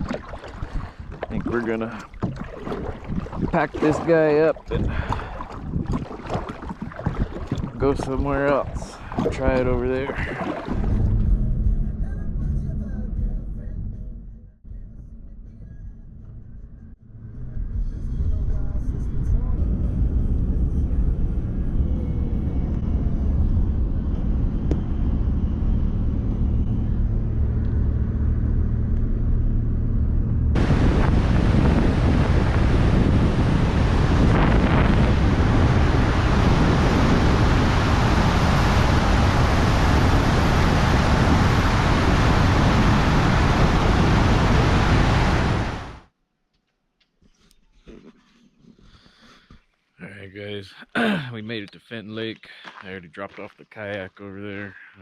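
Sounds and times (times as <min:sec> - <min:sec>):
wind and tyres rushing: 0:00.0 - 0:11.4, 0:21.3 - 0:46.1
car engine and road rumble: 0:07.7 - 0:46.1.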